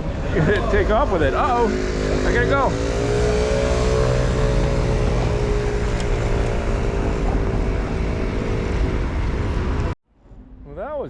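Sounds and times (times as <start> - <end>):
bus engine whine and rumble: 2.9 - 10.0.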